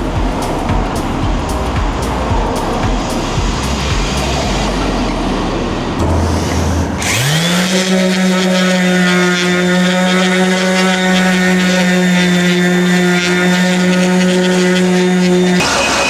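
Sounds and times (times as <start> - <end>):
electric power tool motor: 6.9 - 16.0.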